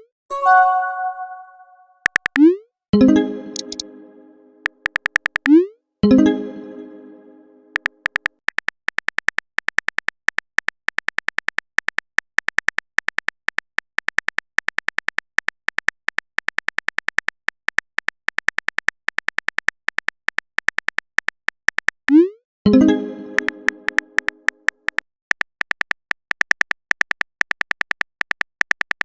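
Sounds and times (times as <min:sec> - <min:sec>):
phone keyboard typing ticks: 0:02.0 - 0:02.5, 0:03.5 - 0:03.9, 0:04.6 - 0:05.6, 0:07.7 - 0:29.0.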